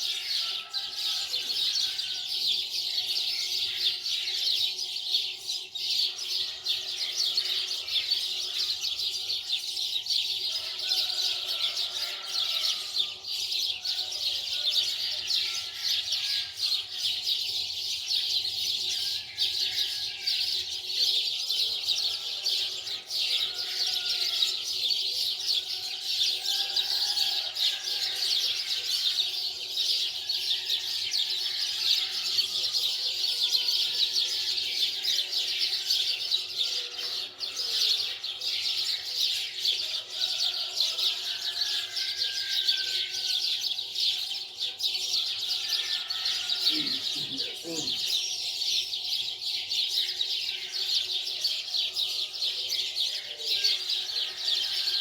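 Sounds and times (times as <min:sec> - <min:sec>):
small birds chirping: 0:32.4 - 0:54.8.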